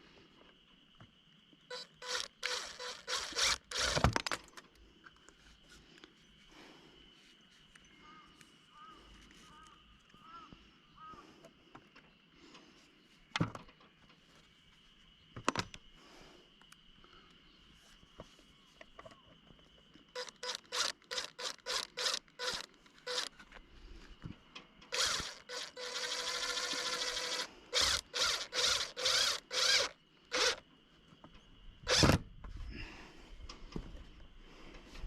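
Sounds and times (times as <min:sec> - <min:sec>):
hand tool rasping: 0:20.2 - 0:23.4, 0:25.0 - 0:30.6.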